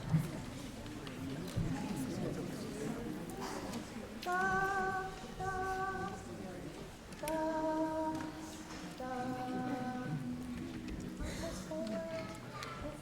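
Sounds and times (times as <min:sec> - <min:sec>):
choir singing unaccompanied: 0:04.3 - 0:06.4, 0:07.2 - 0:10.5.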